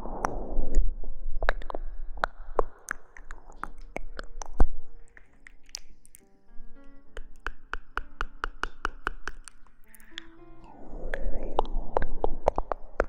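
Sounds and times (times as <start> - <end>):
crisp crackling and clicking taps: 1.5 - 10.4
crinkling: 1.6 - 10.4.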